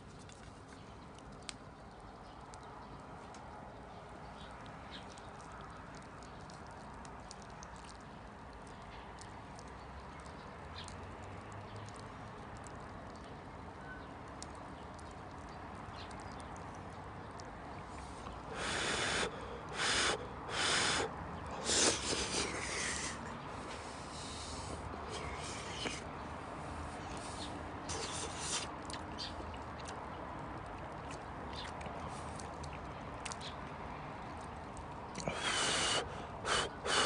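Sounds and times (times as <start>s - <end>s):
campfire crackling: 0.0s - 26.1s.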